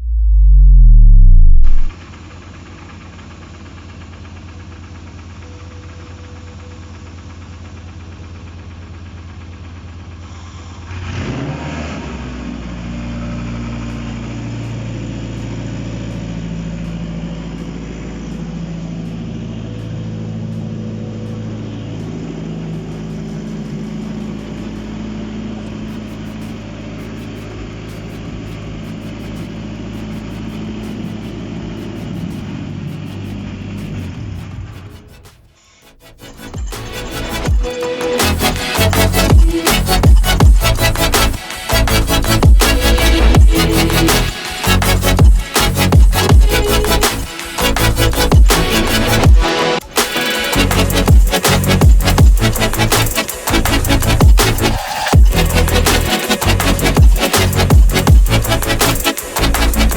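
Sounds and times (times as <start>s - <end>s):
low hum: 0.0s - 2.0s, 13.1s - 35.1s, 36.0s - 59.9s
engine idling: 1.8s - 35.0s, 36.2s - 59.9s.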